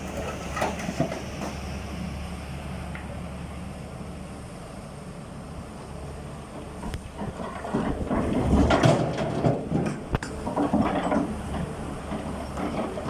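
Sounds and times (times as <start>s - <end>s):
rocks clattering and rumbling: 0.0s - 1.6s, 6.6s - 13.0s
excavator diesel engine running: 0.0s - 13.0s.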